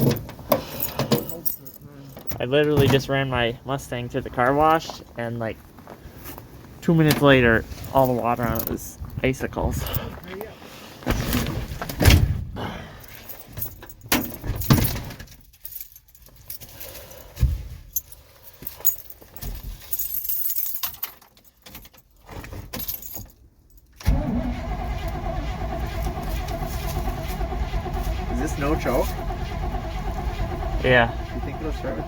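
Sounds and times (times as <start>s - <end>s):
keys jangling: 0.0s - 2.4s, 13.0s - 24.0s
engine cranking on starter: 24.0s - 32.0s.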